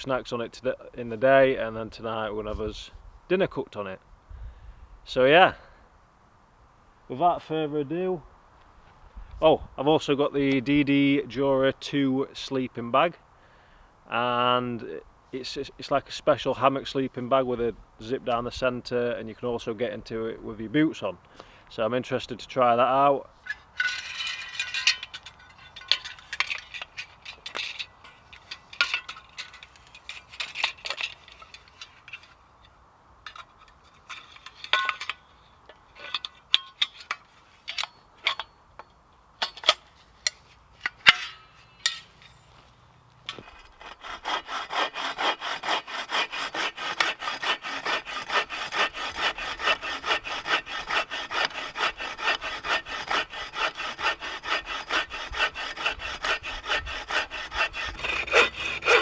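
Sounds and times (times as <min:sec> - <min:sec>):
hand saw cutting wood: 0:23.5 - 0:32.4, 0:43.3 - 0:59.0.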